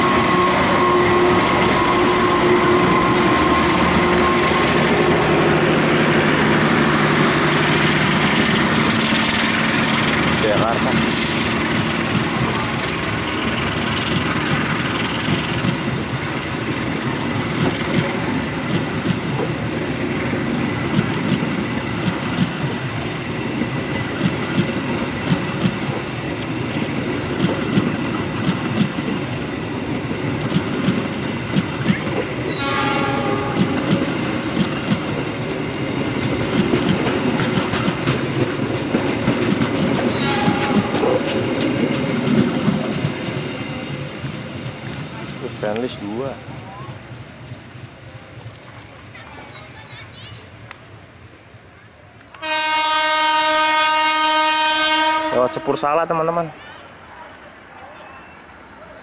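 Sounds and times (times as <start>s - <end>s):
train horn: 0.0s - 7.6s, 32.5s - 33.9s, 40.1s - 41.2s, 52.4s - 56.2s
train wheels clacking over rail joints: 0.0s - 46.4s
train rumble: 0.0s - 59.0s.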